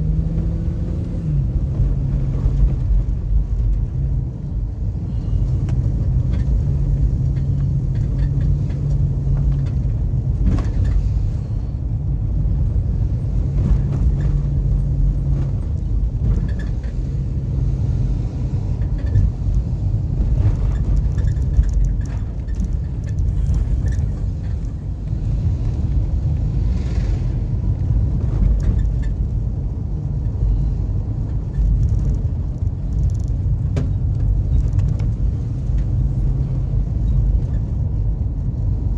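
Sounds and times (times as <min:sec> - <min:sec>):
car engine and tyre rumble: 0:00.0 - 0:38.9
knocks and rattles: 0:18.7 - 0:26.0, 0:31.3 - 0:36.5.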